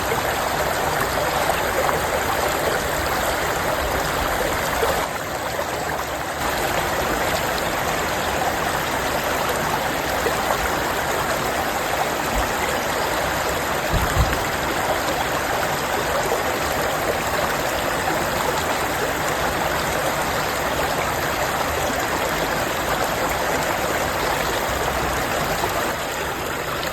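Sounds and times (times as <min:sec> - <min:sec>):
stream running over rocks: 0:00.0 - 0:26.9
low thump: 0:13.9 - 0:14.5.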